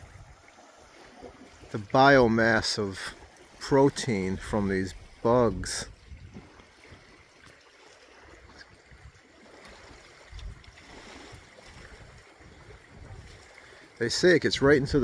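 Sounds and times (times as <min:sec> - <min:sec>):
light wind on microphone: 0:00.0 - 0:00.5, 0:04.1 - 0:07.1, 0:08.4 - 0:13.6, 0:14.4 - 0:15.0.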